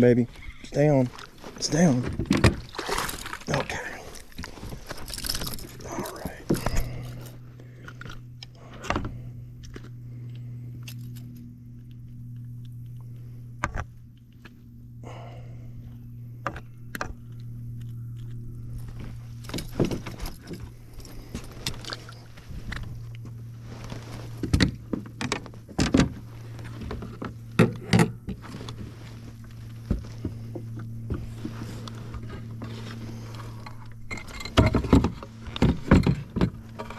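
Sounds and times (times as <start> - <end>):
steady low hum: 0.0 - 36.9
knocks and clicks of gear: 1.0 - 14.7, 15.8 - 36.9
gear knocking and rattling: 1.1 - 7.4.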